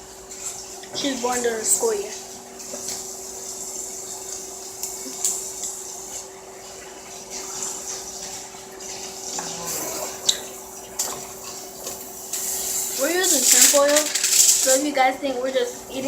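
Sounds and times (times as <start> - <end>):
clicks and wet rustling: 0.3 - 16.0
steady hum: 9.2 - 16.0.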